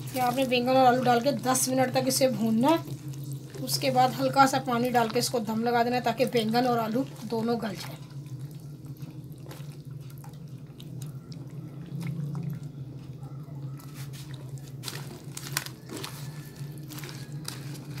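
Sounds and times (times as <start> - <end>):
eggplant frying with crackles: 0.0 - 9.6, 14.0 - 18.0
steady low hum: 0.0 - 18.0.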